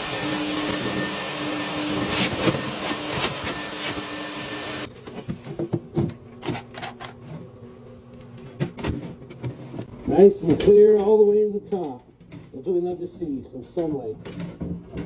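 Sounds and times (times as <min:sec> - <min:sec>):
vacuum humming: 0:00.0 - 0:06.2.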